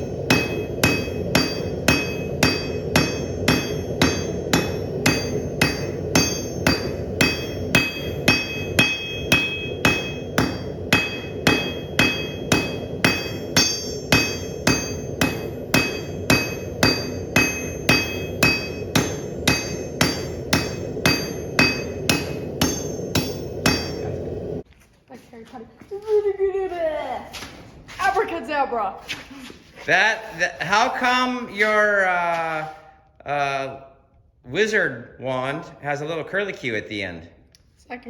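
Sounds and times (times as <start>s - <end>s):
hammer ringing on anvil: 0.0s - 24.6s
constant low hum: 0.0s - 38.0s.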